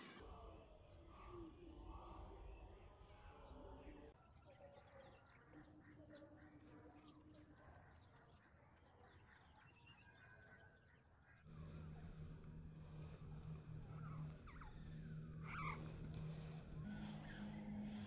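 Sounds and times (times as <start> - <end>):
faint bird chirps: 0.0 - 11.5, 13.5 - 18.0
low steady hum: 11.4 - 18.0.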